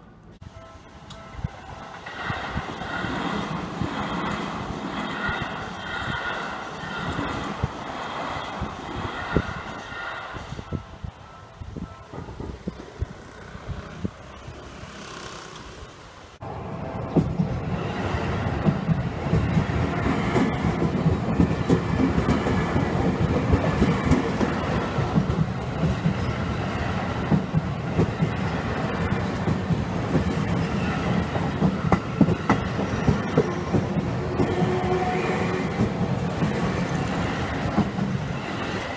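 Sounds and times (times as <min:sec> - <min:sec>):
electric train passing: 0:00.0 - 0:38.9
street traffic: 0:00.0 - 0:38.9
train wheels clicking over rail joints: 0:02.0 - 0:10.6, 0:17.0 - 0:38.9.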